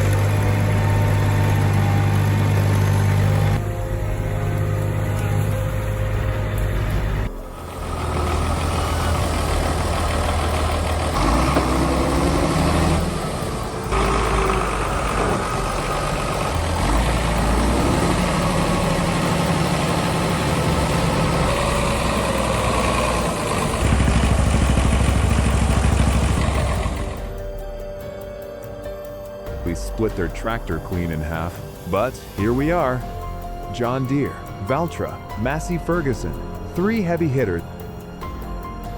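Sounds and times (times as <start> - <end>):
tractor engines labouring: 0.0 - 38.9.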